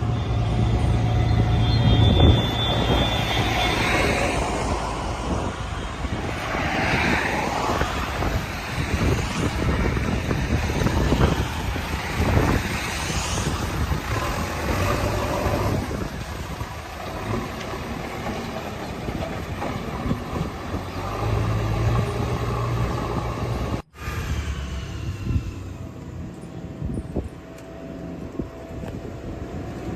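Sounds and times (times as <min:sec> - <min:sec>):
heavy machinery diesel engines: 0:00.0 - 0:29.9
machinery rattling and clanking: 0:13.4 - 0:23.8.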